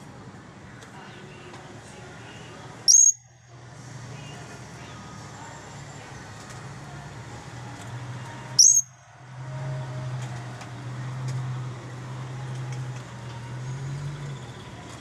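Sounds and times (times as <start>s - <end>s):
parrot shrill call: 2.9s - 3.2s, 8.6s - 9.0s.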